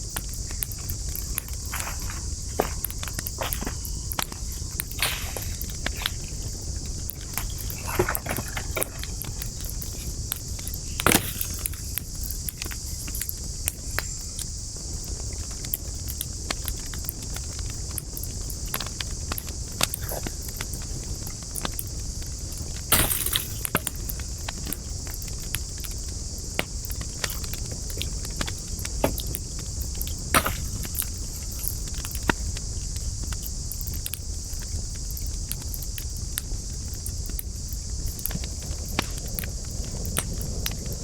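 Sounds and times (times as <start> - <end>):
high hiss: 0.0 - 15.4
sharp fire pops: 0.0 - 41.0
wood fire crackling: 0.0 - 41.0.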